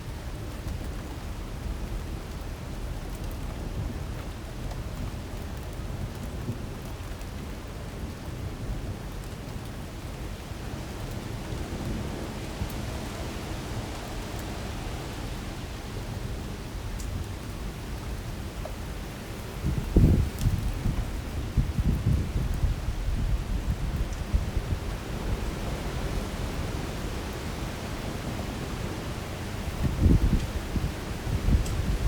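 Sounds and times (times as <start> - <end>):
heavy rain pouring: 0.1 - 32.0
strong wind: 10.0 - 32.0.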